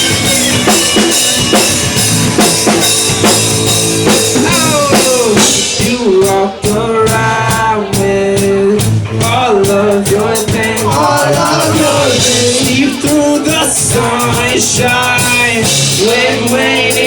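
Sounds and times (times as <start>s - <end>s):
sliding melodic guitar line: 0.0s - 9.5s
drum kit beat: 0.0s - 17.0s
live rock band playing: 0.0s - 17.0s.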